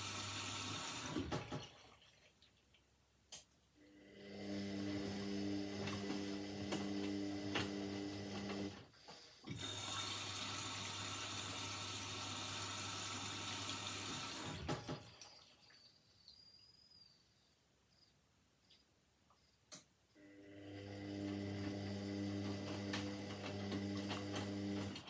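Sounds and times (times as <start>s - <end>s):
water running into washing machine: 0.0s - 2.9s, 4.4s - 8.9s, 9.5s - 16.0s, 20.8s - 25.0s
washing machine electrical hum: 0.0s - 17.1s, 19.7s - 25.0s.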